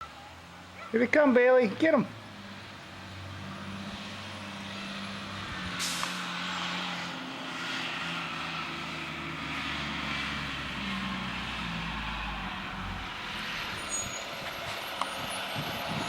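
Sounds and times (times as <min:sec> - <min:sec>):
bus engine running: 0:01.8 - 0:16.0
air brakes hissing: 0:05.8 - 0:06.2.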